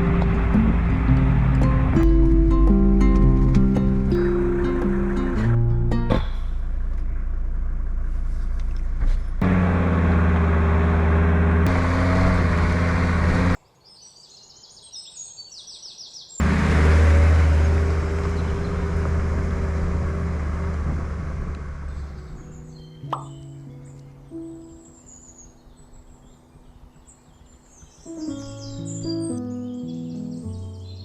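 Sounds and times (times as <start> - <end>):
diesel engine running: 0.0 - 13.6, 16.4 - 22.6
birdsong: 13.4 - 16.4, 17.8 - 31.0.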